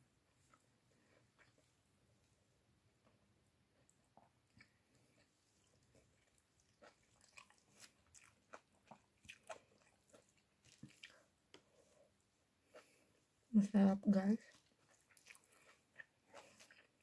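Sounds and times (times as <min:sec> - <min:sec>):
person chewing and mouth smacks: 0:00.4 - 0:01.7, 0:03.8 - 0:12.0, 0:14.5 - 0:17.0.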